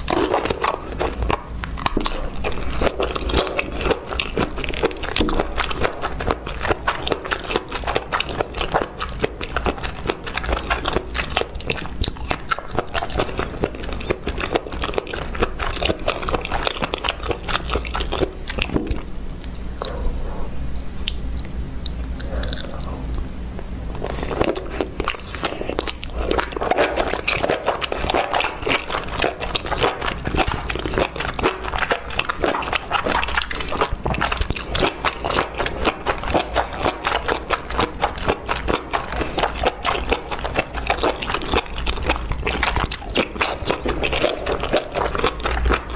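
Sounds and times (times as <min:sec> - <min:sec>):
wet chewing and lip smacks: 0:00.0 - 0:45.9
crunchy bites: 0:24.0 - 0:45.9.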